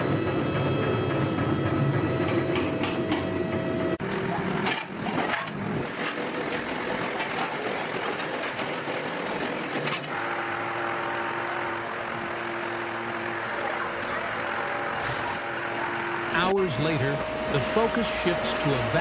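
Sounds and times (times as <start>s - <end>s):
industrial machinery noise: 0.0s - 19.0s.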